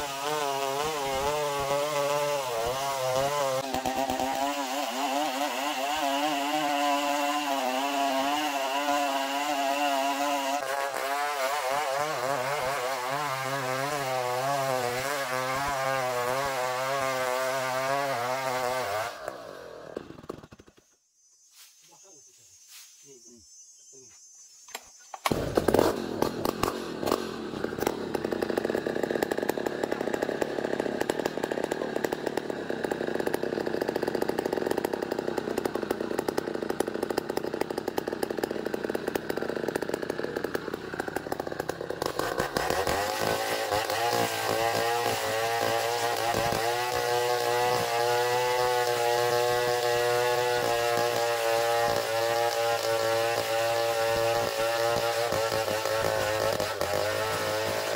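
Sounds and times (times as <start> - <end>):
chainsaw cutting wood: 0.0 - 20.8, 24.7 - 57.9.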